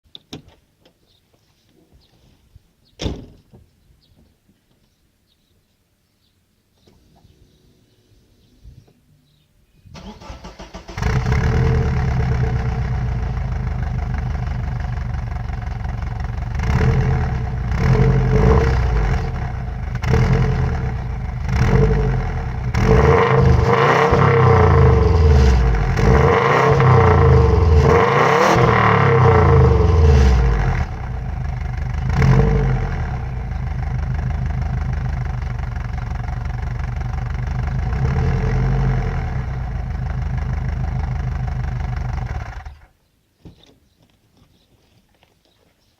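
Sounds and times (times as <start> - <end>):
car engine idling and revving: 10.5 - 42.9.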